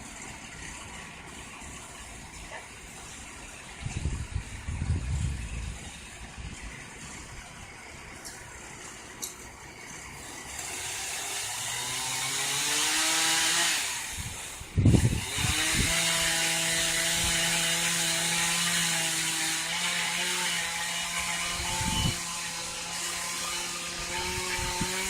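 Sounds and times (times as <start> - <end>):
chainsaw revving: 10.2 - 25.0.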